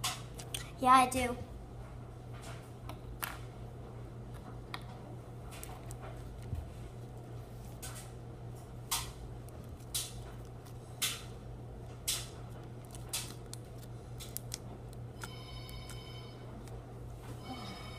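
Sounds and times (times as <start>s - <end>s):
steady low hum: 0.0s - 17.9s
slime clicking and popping: 12.0s - 16.0s
phone ringing: 15.2s - 16.5s, 17.4s - 17.9s.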